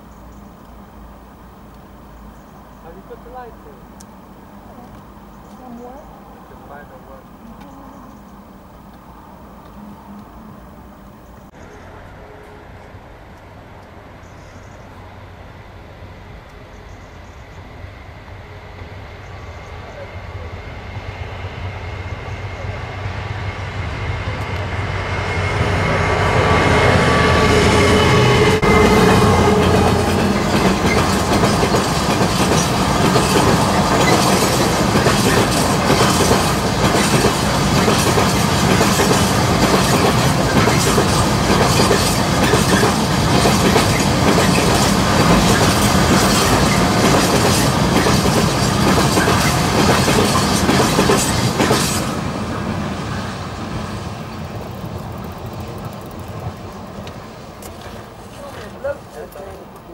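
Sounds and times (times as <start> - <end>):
freight train passing: 0.0 - 59.9.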